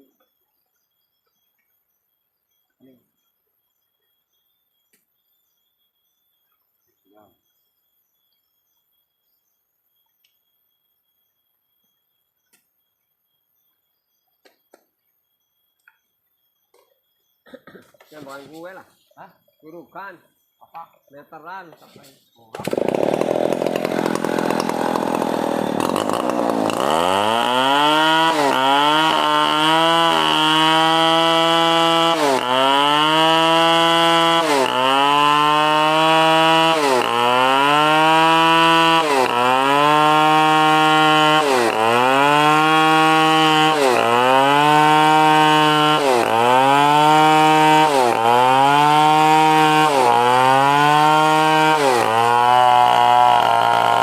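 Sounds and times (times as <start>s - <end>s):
chainsaw cutting wood: 22.5s - 54.0s.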